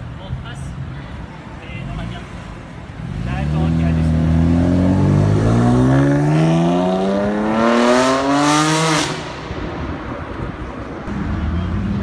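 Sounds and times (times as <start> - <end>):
car engine accelerating hard: 3.1 - 9.2.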